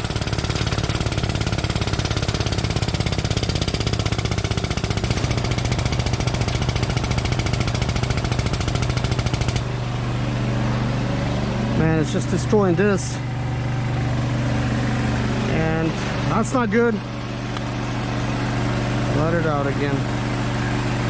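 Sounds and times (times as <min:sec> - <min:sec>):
hydraulic pump chattering: 0:00.0 - 0:09.8
low engine hum: 0:00.0 - 0:21.0.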